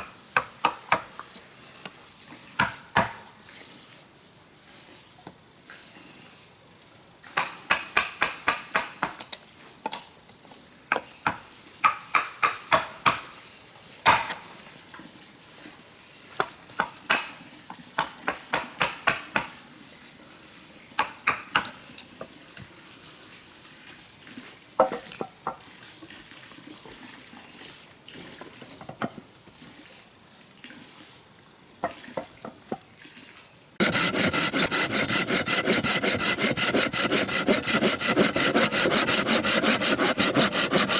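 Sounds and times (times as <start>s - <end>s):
saw cutting through wood: 33.8s - 40.9s
tool strokes on wood: 33.8s - 40.9s.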